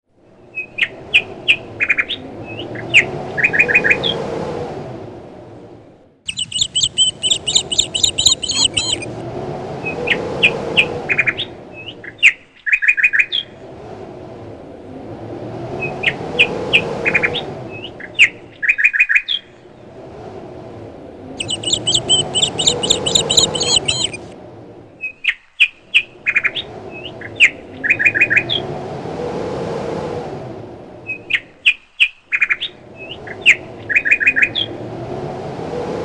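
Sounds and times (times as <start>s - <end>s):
gusting wind: 0.1s - 36.0s
fast chattering bird calls: 6.3s - 9.1s, 21.4s - 24.2s
songbirds chirping: 6.3s - 9.2s, 21.4s - 24.4s.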